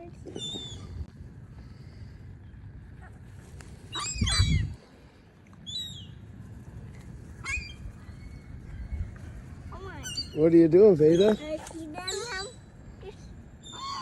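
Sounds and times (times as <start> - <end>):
low outdoor noise: 0.0 - 14.0
gulls mewing cries: 13.6 - 14.0.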